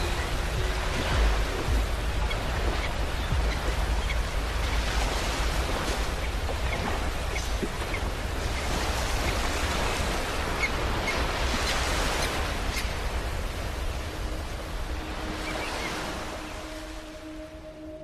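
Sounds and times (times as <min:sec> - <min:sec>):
low musical tone: 0:00.0 - 0:06.6, 0:13.4 - 0:18.0
ocean waves washing onto beach: 0:00.0 - 0:18.0.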